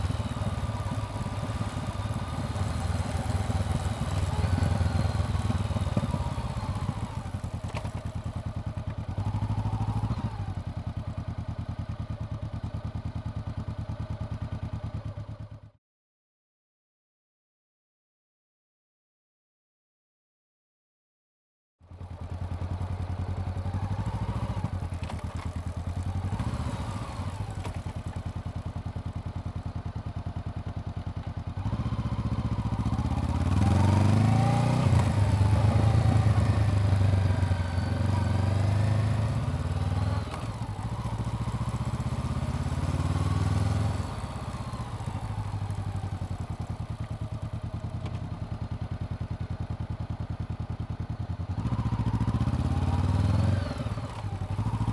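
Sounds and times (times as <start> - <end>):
motorcycle engine revving: 0.0 - 11.8, 21.9 - 29.6, 31.5 - 48.2, 49.6 - 54.9.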